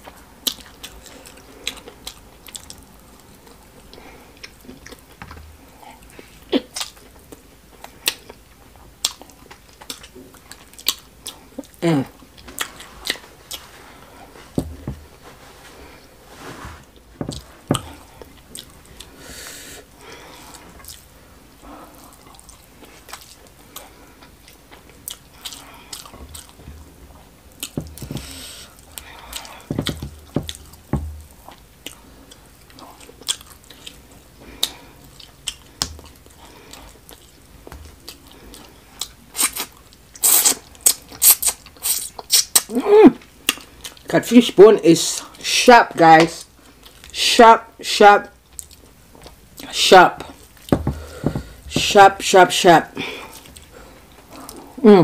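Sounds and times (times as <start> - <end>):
person chewing wetly: 0.4 - 11.8, 12.4 - 13.7, 17.2 - 19.2, 20.1 - 21.1, 21.9 - 42.7, 43.4 - 44.1, 46.6 - 47.1.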